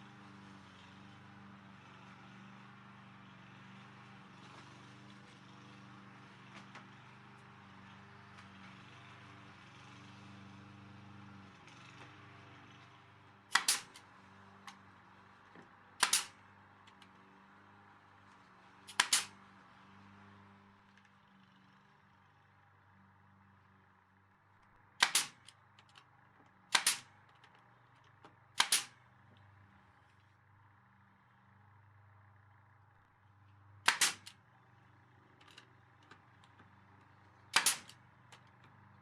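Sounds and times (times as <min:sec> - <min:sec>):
nail gun shots: 0:13.5 - 0:14.0, 0:16.0 - 0:16.4, 0:18.9 - 0:19.4, 0:25.0 - 0:25.5, 0:26.7 - 0:27.1, 0:28.6 - 0:29.0, 0:33.8 - 0:34.4, 0:37.5 - 0:38.0.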